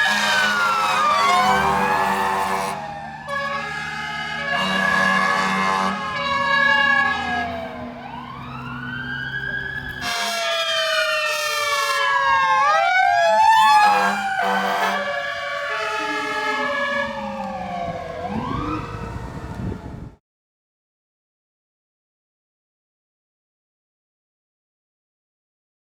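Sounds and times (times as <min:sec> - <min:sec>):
two-tone horn: 0:00.0 - 0:07.8, 0:10.0 - 0:12.0, 0:13.6 - 0:17.6
fire engine sirens wailing: 0:00.0 - 0:20.2.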